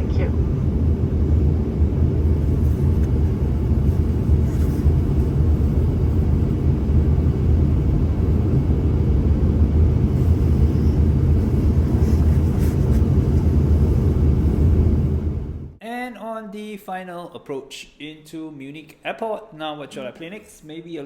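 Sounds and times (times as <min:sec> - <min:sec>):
jet cabin rumble: 0:00.0 - 0:15.8.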